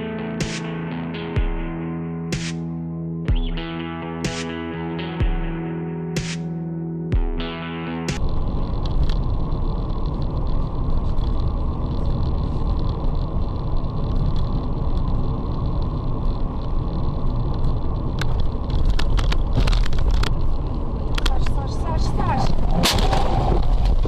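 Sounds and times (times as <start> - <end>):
road and engine noise: 0.0 - 24.0.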